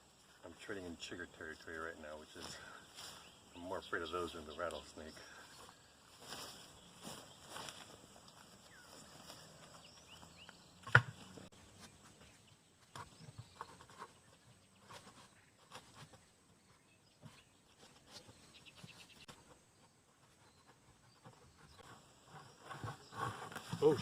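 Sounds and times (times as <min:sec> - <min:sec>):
footsteps through grass and brush: 0:02.3 - 0:10.6.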